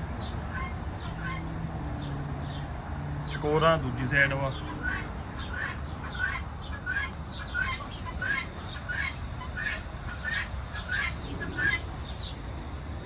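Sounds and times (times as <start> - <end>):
partridges calling: 3.2 - 12.4.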